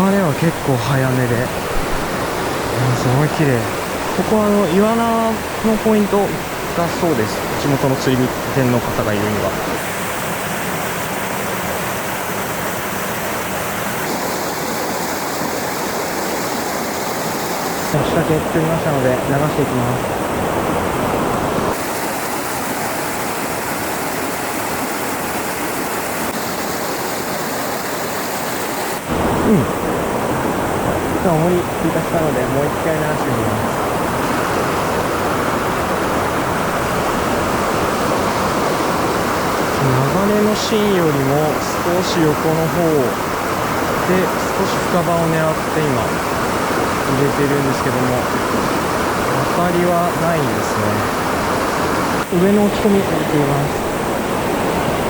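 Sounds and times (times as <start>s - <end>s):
mountain stream rushing: 0.0s - 55.0s.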